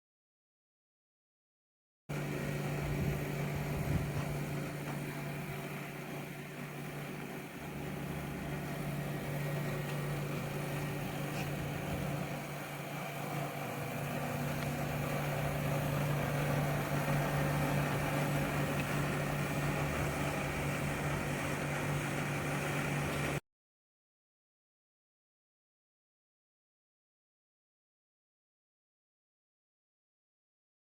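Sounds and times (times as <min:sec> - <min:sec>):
air conditioner units humming: 0:02.1 - 0:23.4.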